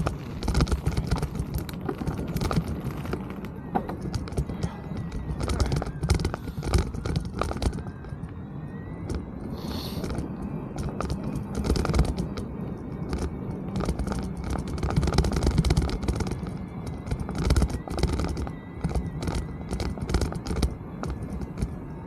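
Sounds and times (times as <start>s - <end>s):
bike clicks and rattling knocks: 0.0s - 22.0s
tyres rumbling on rough trail: 0.0s - 22.0s.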